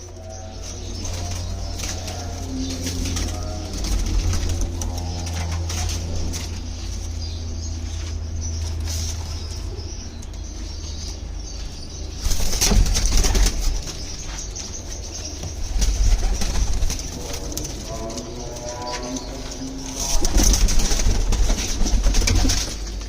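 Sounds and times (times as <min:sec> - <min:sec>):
pigeons cooing: 0:00.0 - 0:23.0
wings flapping: 0:12.2 - 0:14.2, 0:15.6 - 0:18.0, 0:20.0 - 0:23.0.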